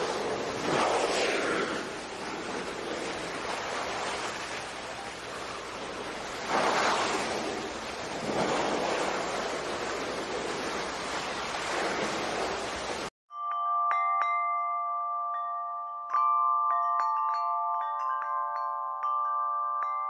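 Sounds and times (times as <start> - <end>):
ocean waves washing: 0.0 - 13.1.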